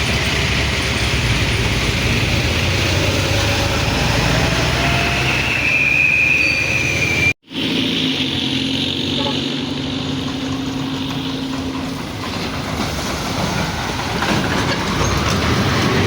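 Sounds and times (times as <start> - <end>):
truck engine droning: 0.0 - 16.0
high thin squeal: 4.8 - 7.4.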